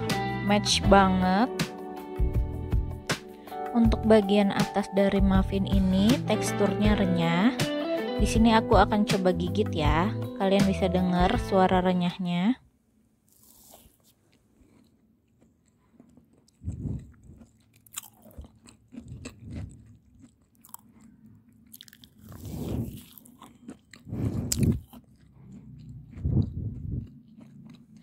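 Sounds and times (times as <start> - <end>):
chewing crunchy muffin: 13.3 - 28.0.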